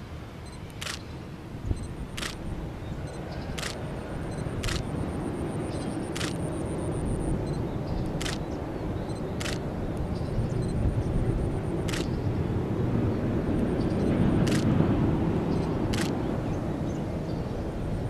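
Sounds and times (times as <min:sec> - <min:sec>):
low rumbling background noise: 0:00.0 - 0:18.0
sharp short clicks: 0:00.5 - 0:01.1, 0:01.8 - 0:02.5, 0:03.5 - 0:04.9, 0:06.1 - 0:06.5, 0:08.1 - 0:08.5, 0:09.4 - 0:10.8, 0:11.8 - 0:12.2, 0:14.4 - 0:14.7, 0:15.9 - 0:16.2.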